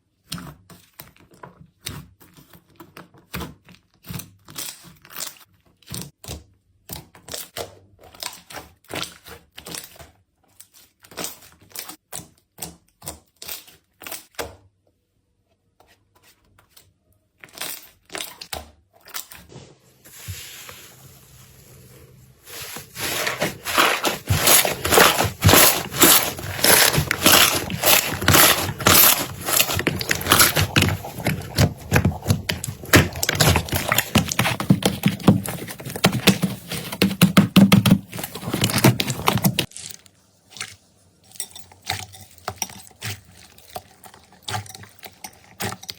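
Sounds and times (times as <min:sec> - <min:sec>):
dense crackling of slime: 0:22.6 - 0:40.0.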